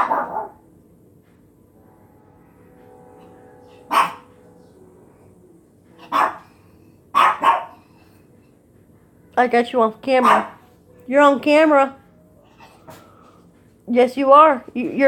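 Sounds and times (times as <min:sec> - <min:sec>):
dog barking: 0:00.0 - 0:00.6, 0:03.9 - 0:04.3, 0:06.0 - 0:06.5, 0:07.1 - 0:07.8, 0:10.2 - 0:10.6.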